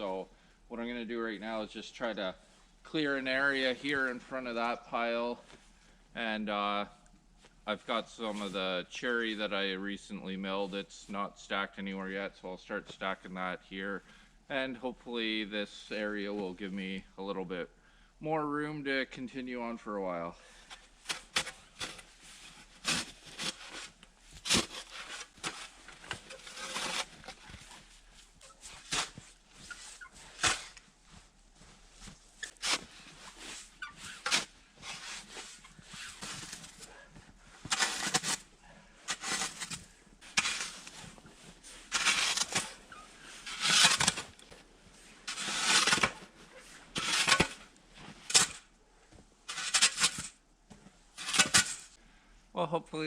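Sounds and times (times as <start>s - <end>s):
shovel scraping snow: 21.0s - 30.8s, 32.0s - 37.0s, 37.6s - 44.4s, 45.2s - 48.6s, 49.5s - 50.3s, 51.2s - 51.9s.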